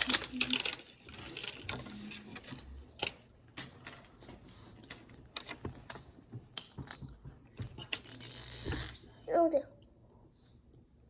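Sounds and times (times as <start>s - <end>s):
toy pieces clicking: 0.0s - 2.0s.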